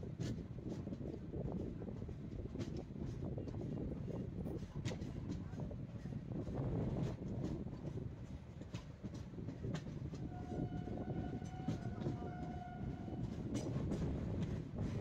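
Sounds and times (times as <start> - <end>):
train rumbling: 0.0 - 15.0
train wheel clacks: 0.1 - 15.0
train horn: 10.1 - 13.5.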